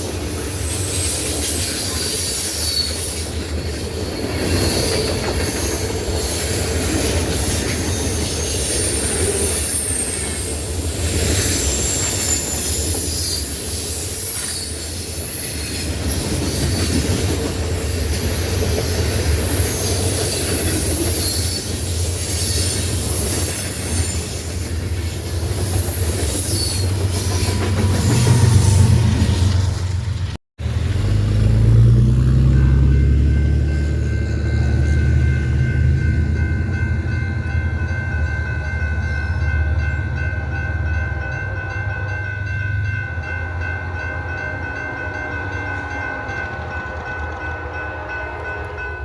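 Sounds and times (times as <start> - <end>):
train wheels squealing: 0.0 - 29.7
low rumble of train cars: 0.0 - 49.0.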